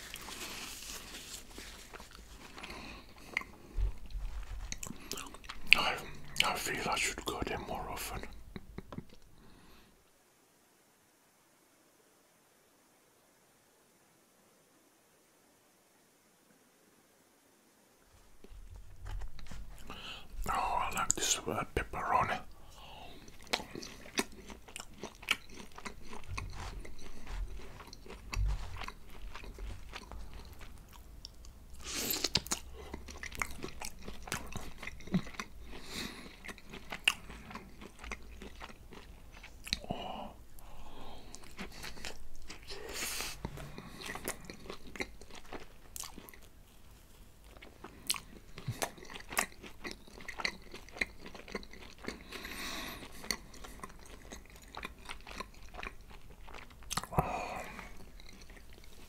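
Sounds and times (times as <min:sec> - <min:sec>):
chewing with wet mouth clicks: 0:01.9 - 0:07.3, 0:08.2 - 0:09.4, 0:23.1 - 0:39.9, 0:40.6 - 0:46.6, 0:47.5 - 0:59.0.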